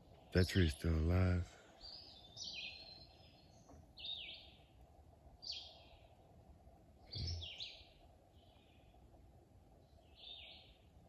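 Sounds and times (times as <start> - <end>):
faint background hiss: 0.0 - 11.0
bird calling: 1.8 - 4.8, 7.1 - 8.9.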